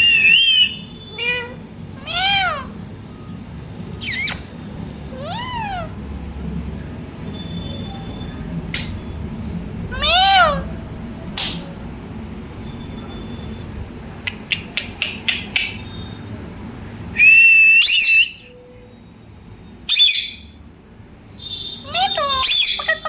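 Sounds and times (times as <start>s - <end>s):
parrot wavering call: 0.0s - 2.7s, 4.0s - 4.4s, 5.2s - 6.0s, 9.9s - 10.8s, 17.2s - 18.5s, 19.9s - 20.4s, 21.8s - 23.0s
parrot whistling: 0.0s - 2.7s, 4.0s - 4.5s, 5.1s - 6.0s, 9.9s - 10.7s, 14.2s - 16.2s, 17.2s - 18.6s, 19.8s - 20.5s, 21.8s - 23.0s
parrot clicks: 14.2s - 15.8s.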